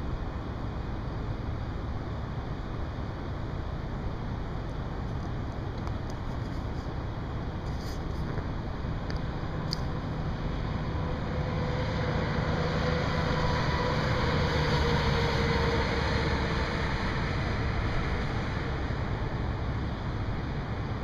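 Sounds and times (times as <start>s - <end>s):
vehicle passing: 9.9s - 19.7s.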